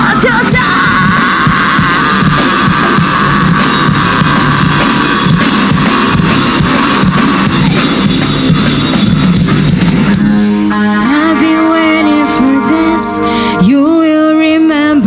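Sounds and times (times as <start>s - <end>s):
drum kit with cymbals: 0.0s - 10.7s
heavy rock band playing: 0.0s - 14.9s.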